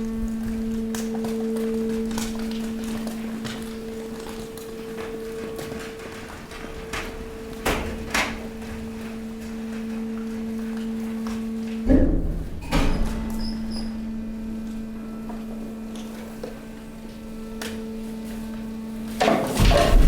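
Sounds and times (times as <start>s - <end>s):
hydraulic pump humming: 0.0s - 20.0s
loud crunching bang: 19.2s - 20.0s.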